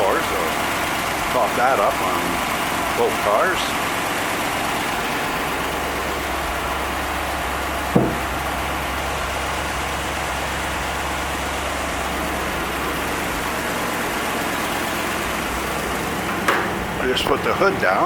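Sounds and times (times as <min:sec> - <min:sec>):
car engine idling: 0:00.0 - 0:18.0
metallic clunk: 0:07.9 - 0:08.4.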